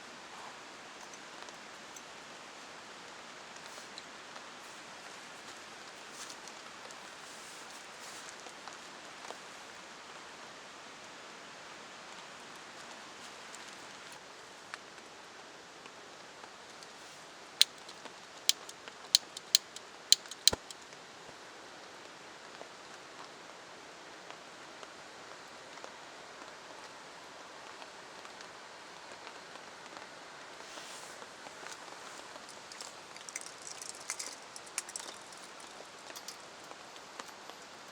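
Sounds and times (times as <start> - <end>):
sharp clicks or taps: 18.5 - 20.7.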